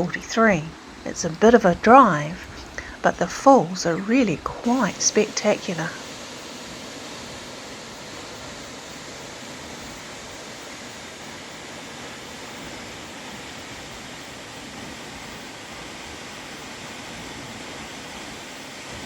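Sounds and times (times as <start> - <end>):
waterfall roaring: 0.0 - 19.0.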